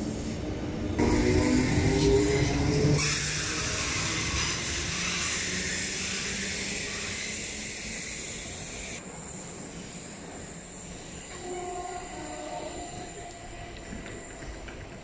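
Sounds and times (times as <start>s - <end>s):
electric train passing close by: 0.0s - 15.0s.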